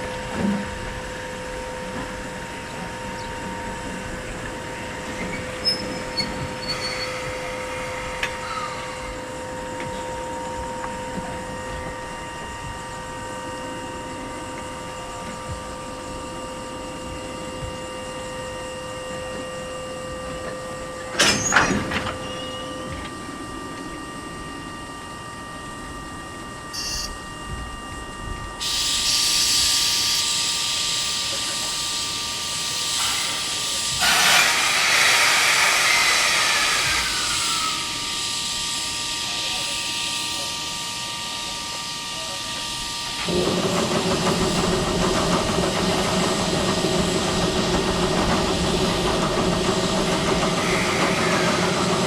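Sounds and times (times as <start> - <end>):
locomotive hum: 0.0 - 52.0
compressed air hissing: 28.6 - 38.9.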